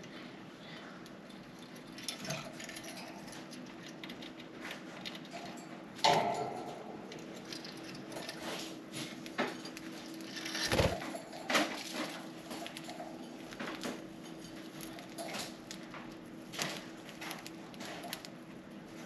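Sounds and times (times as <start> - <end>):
birds pecking seed: 7.1 - 19.0.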